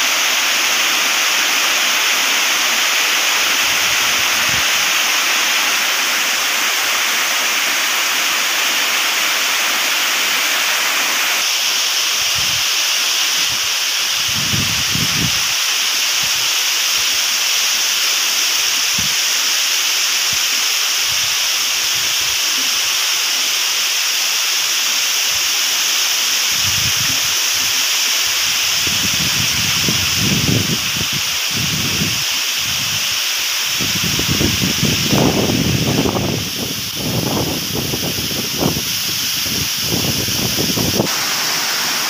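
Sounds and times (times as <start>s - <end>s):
heavy rain and runoff hissing: 0.0s - 42.0s.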